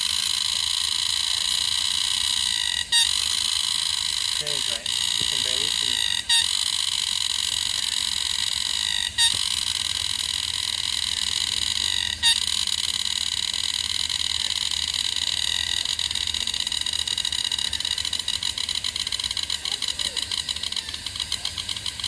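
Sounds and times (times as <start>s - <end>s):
cicada buzzing: 0.0s - 22.0s.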